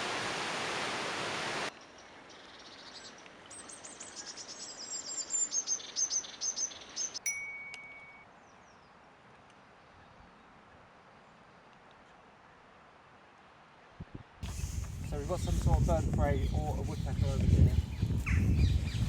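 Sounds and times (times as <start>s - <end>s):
loud steady hiss: 0.0s - 1.7s, 14.4s - 17.5s
songbird trilling: 2.5s - 7.2s.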